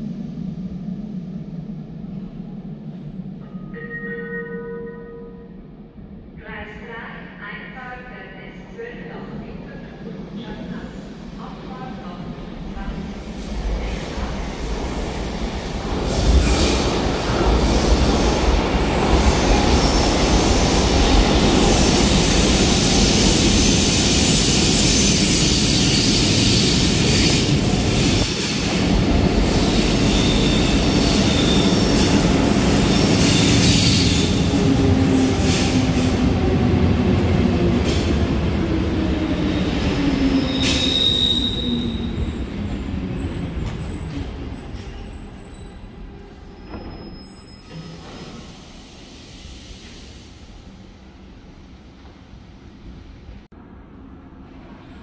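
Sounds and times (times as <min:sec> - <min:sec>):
train rumbling: 0:00.0 - 0:55.0
high brake squeal: 0:40.4 - 0:42.1, 0:43.8 - 0:48.2.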